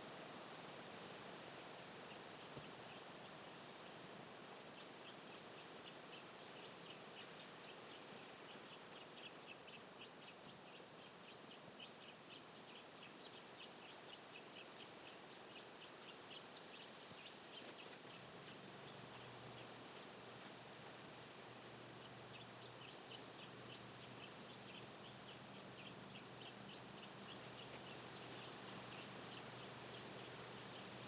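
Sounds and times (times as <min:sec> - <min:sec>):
small birds chirping: 0:04.8 - 0:31.0.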